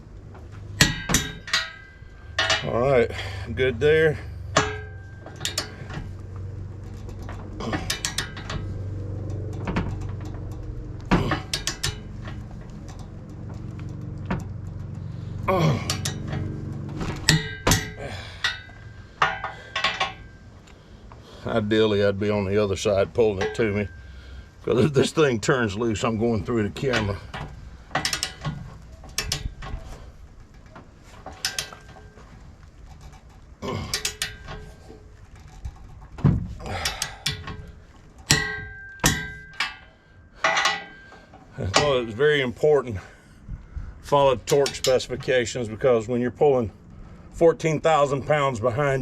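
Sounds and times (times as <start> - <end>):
steady low hum: 0.0 - 49.0
wrench clanking on steel: 0.3 - 43.3, 44.0 - 46.0.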